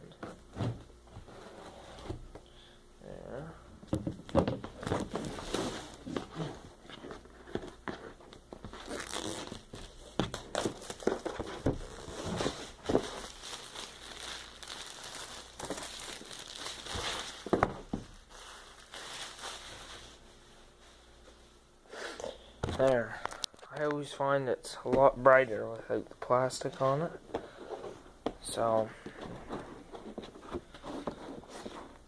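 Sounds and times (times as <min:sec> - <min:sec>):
plastic wrapping tearing and crinkling: 0:08.6 - 0:20.0.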